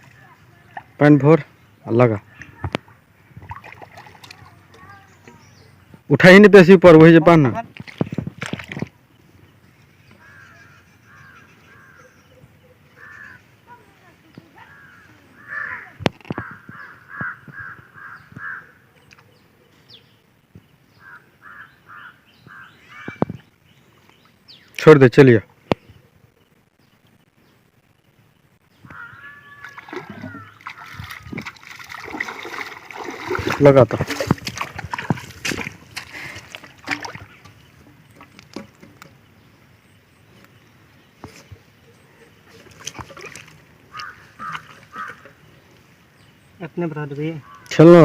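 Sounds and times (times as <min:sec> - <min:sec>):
water splashing and sloshing: 0:00.0 - 0:01.5, 0:02.2 - 0:06.1, 0:07.5 - 0:10.4, 0:28.9 - 0:39.4, 0:41.2 - 0:45.9
crows cawing: 0:10.2 - 0:12.3, 0:12.9 - 0:13.5, 0:14.6 - 0:18.9, 0:21.0 - 0:23.3, 0:28.8 - 0:31.2, 0:43.8 - 0:45.5, 0:47.3 - 0:47.8.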